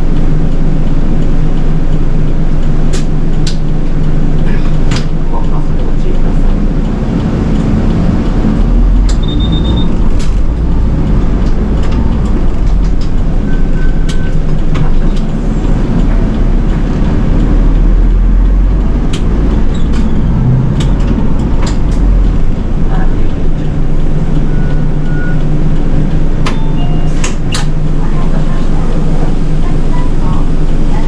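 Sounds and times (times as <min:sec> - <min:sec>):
bus engine and road rumble: 0:00.0 - 0:31.0
rattles and clicks: 0:00.1 - 0:30.0
lower pulsed beep: 0:09.1 - 0:10.1, 0:26.5 - 0:27.1
short high beep: 0:09.2 - 0:10.0.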